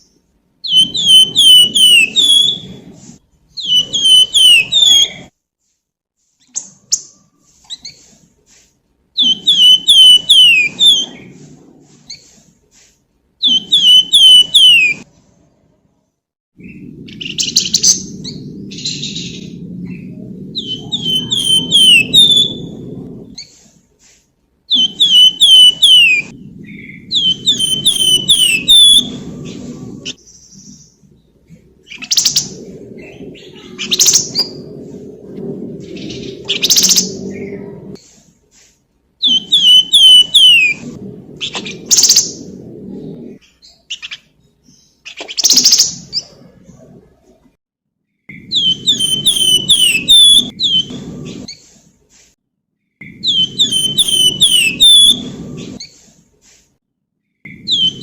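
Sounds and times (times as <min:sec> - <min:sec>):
songbird whistling: 0:00.6 - 0:02.8, 0:03.6 - 0:05.3, 0:09.2 - 0:11.3, 0:13.4 - 0:15.0, 0:20.6 - 0:22.8, 0:24.7 - 0:30.8, 0:39.2 - 0:42.5, 0:48.3 - 0:51.0, 0:53.0 - 0:55.3, 0:57.5 - 0:58.0
low rumble: 0:16.6 - 0:23.4, 0:26.2 - 0:38.0, 0:40.6 - 0:43.4, 0:50.4 - 0:51.5, 0:55.2 - 0:55.8.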